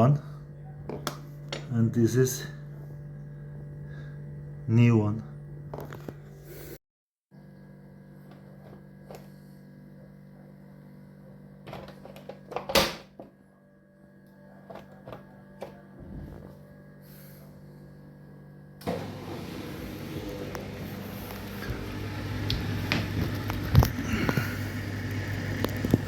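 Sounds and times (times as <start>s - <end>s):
dishwasher rushing noise: 18.8s - 24.6s.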